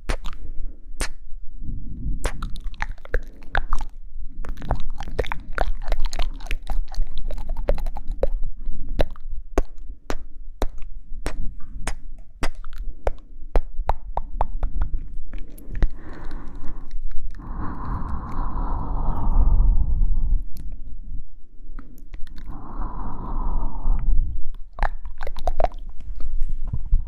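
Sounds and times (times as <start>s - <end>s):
wet mouth clicks and smacks: 0.0s - 1.3s, 2.2s - 19.4s, 20.4s - 20.9s, 21.8s - 23.3s, 23.9s - 26.4s
low rumble: 0.6s - 3.3s, 14.6s - 27.0s.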